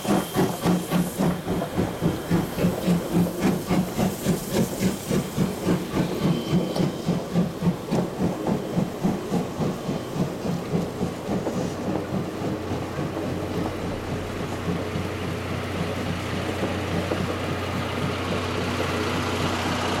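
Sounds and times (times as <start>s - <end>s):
steam locomotive chuffing: 0.0s - 20.0s.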